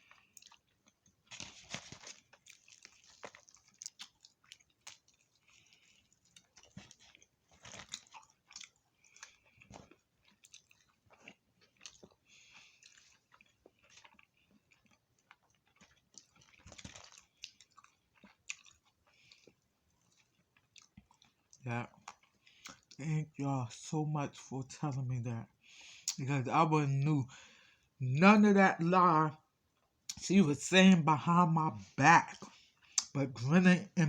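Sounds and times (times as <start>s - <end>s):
chewing crunchy food: 0.0s - 23.0s, 25.5s - 26.2s, 32.2s - 33.2s.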